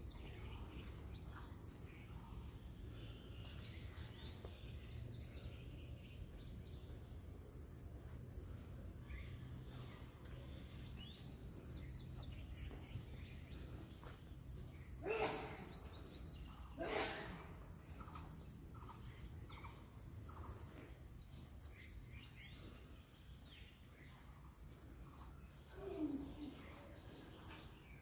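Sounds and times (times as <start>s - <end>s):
small birds chirping: 0.0s - 28.0s
harsh bird calls: 9.1s - 20.6s.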